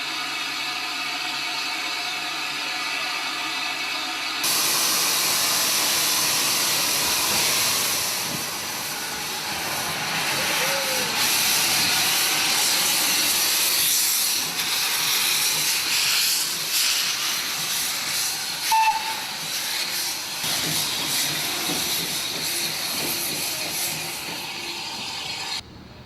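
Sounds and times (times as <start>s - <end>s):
steam hissing: 0.0s - 25.6s
steam whistle toot: 18.6s - 19.4s.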